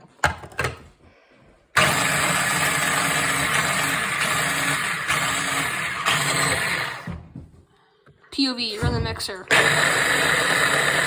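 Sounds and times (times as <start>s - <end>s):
food chopper motor running: 1.8s - 7.2s, 9.5s - 11.0s.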